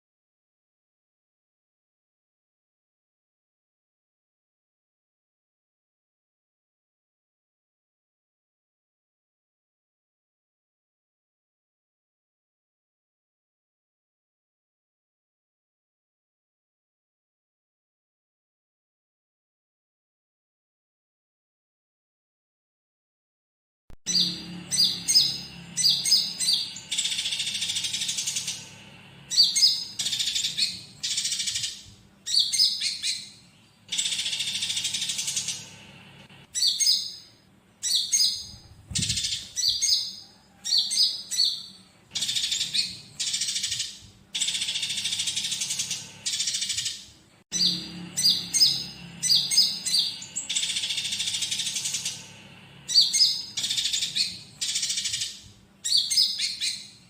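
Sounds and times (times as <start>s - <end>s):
songbird chirps and buzzy trills: 24.1s - 57.0s.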